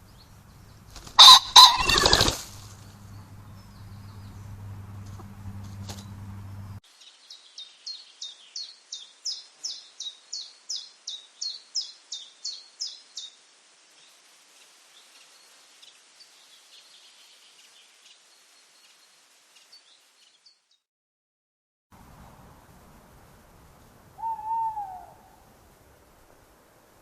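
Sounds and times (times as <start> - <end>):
bird calling sharp falling notes: 1.2 - 2.4, 24.2 - 25.4
light hiss: 2.1 - 6.1, 6.8 - 20.8, 22.0 - 27.0
faint bird chirps: 24.2 - 25.4.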